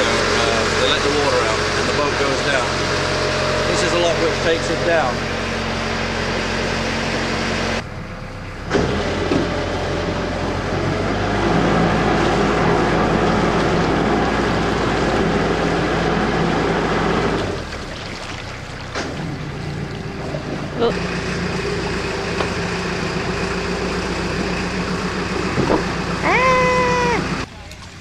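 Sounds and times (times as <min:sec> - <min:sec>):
boat engine low hum: 0:00.0 - 0:28.0
water wash: 0:10.2 - 0:28.0.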